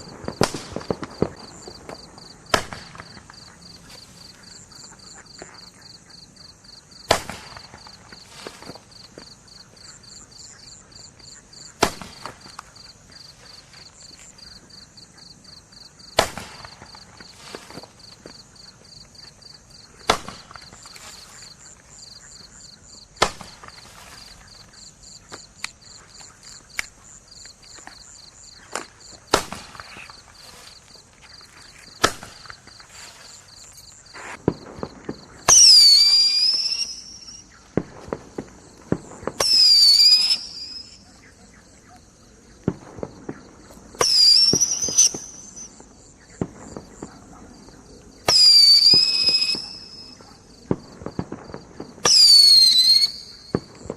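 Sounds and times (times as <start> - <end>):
firework pops: 0.0 - 3.6, 7.1 - 9.3, 11.7 - 12.8, 16.2 - 18.4, 19.9 - 21.5, 23.2 - 41.0, 42.6 - 53.9
crickets chirping: 0.0 - 53.9
shrill whistling fireworks: 0.0 - 53.9.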